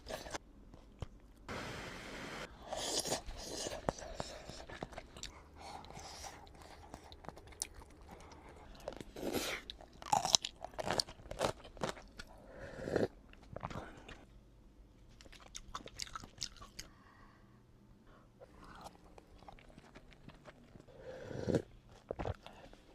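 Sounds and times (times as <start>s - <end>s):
chewing and crunching food: 0.0s - 1.5s, 2.7s - 14.3s, 15.0s - 17.0s, 18.4s - 22.9s.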